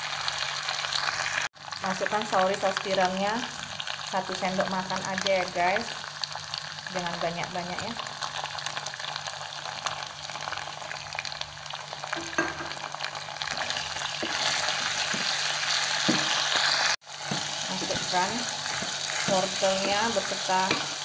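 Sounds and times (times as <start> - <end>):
meat sizzling in hot oil: 0.0 - 21.0
spatula tapping pan: 16.0 - 16.4, 17.2 - 21.0.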